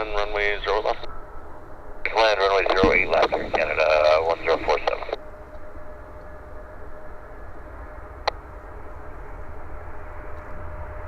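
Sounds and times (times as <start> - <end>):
air traffic control radio calls: 0.0 - 1.2, 2.0 - 5.2
faint steady hum: 0.0 - 11.0
low rumble and hiss: 0.0 - 11.0.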